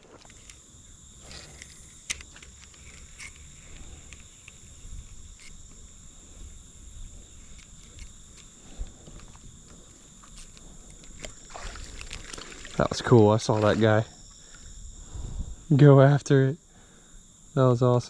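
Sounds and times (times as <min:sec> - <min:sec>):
insects droning high-pitched: 0:00.0 - 0:18.0.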